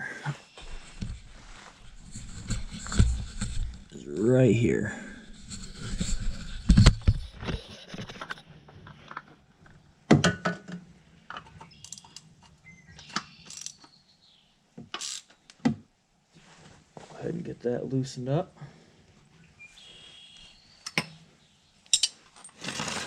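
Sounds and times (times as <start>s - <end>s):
metal wrench clinks and knocks: 21.9s - 22.2s.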